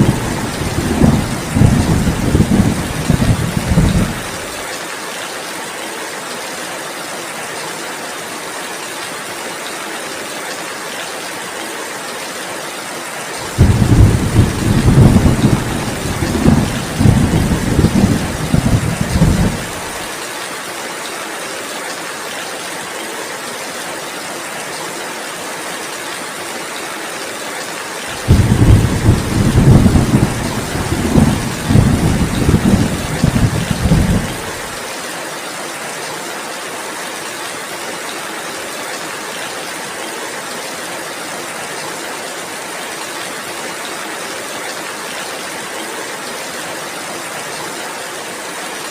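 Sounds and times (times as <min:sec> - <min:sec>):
rolling thunder: 0:00.0 - 0:04.5, 0:13.5 - 0:20.0, 0:28.2 - 0:34.6
heavy rain: 0:00.0 - 0:48.9.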